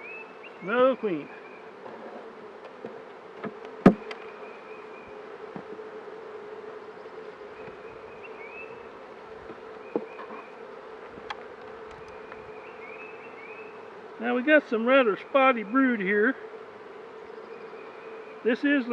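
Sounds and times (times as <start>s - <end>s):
bee colony buzzing: 0.0s - 18.9s.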